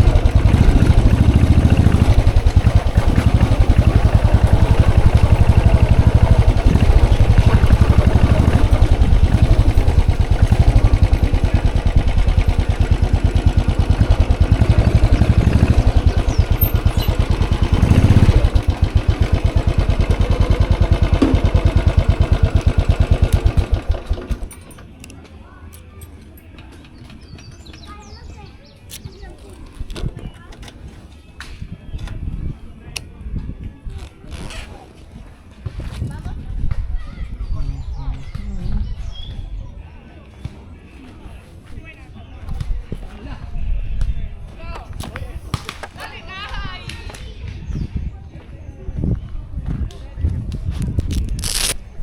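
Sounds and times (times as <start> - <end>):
motorcycle engine idling and revving: 0.0 - 25.2, 50.8 - 51.8.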